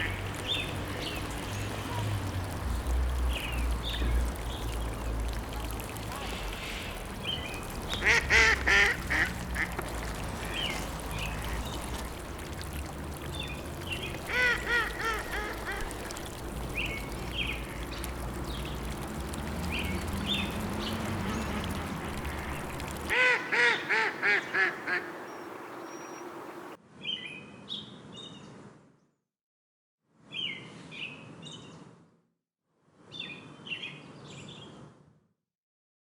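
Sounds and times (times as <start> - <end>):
ducks quacking: 3.6 - 18.2, 21.0 - 25.6.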